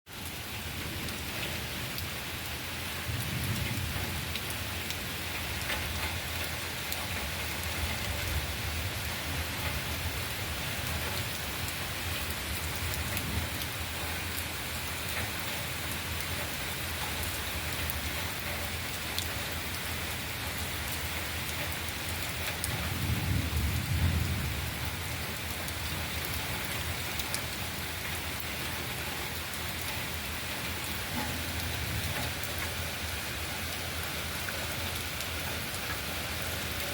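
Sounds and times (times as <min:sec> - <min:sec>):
heavy rain falling: 0:00.1 - 0:36.9.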